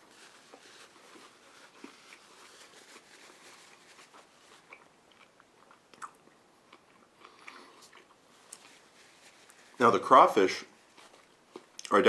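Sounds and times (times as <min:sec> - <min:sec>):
person chewing food: 0:03.6 - 0:08.8, 0:10.9 - 0:11.9
small mouth clicks: 0:05.9 - 0:06.2.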